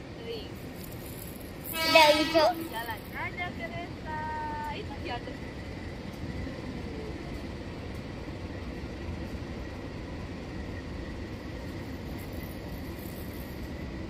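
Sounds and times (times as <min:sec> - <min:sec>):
train coaches rumbling: 0:00.0 - 0:14.0.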